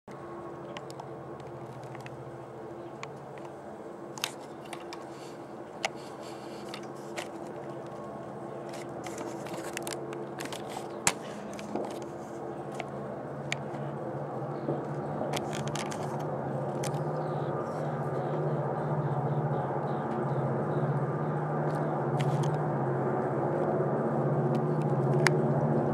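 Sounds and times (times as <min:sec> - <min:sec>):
diesel locomotive engine humming: 0:00.1 - 0:25.9.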